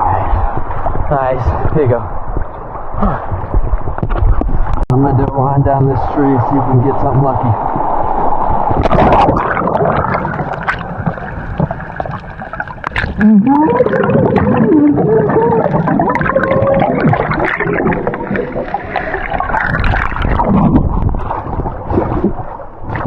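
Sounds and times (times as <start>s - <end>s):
muffled underwater gurgling: 8.7s - 23.0s
wavering gliding tones: 13.2s - 19.8s.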